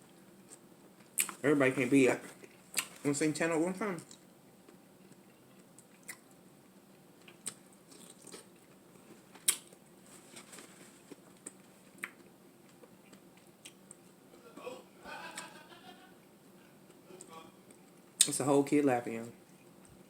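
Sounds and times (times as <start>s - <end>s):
person chewing: 2.3s - 3.0s, 5.1s - 6.3s, 7.2s - 9.8s, 11.0s - 14.2s.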